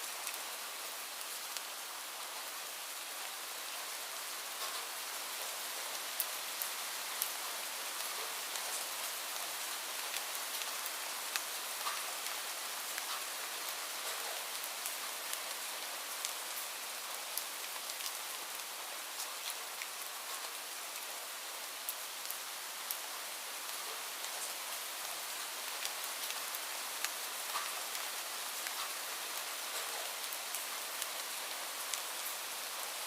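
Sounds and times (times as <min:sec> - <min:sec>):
steady rain hiss: 0:00.0 - 0:33.0
raindrops clicking nearby: 0:11.3 - 0:12.4, 0:13.0 - 0:13.3, 0:25.8 - 0:28.0, 0:28.6 - 0:29.0.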